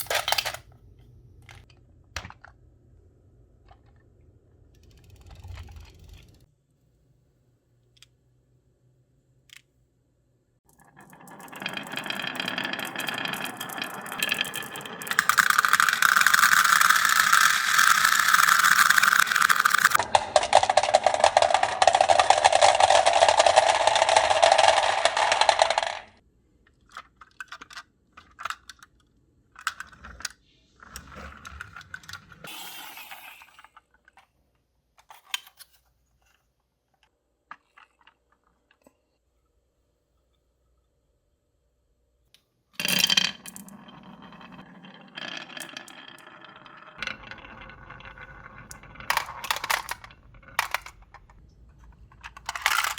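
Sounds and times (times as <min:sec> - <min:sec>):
marbles rolling down a track: 0:04.8 - 0:06.5, 0:10.7 - 0:26.2, 0:42.8 - 0:52.9
scattered clicks: 0:15.1 - 0:26.1.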